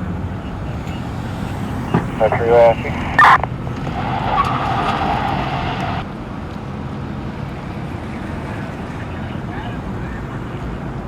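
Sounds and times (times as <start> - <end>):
low vehicle rumble: 0.0 - 6.1
two-way radio hiss: 1.9 - 6.0.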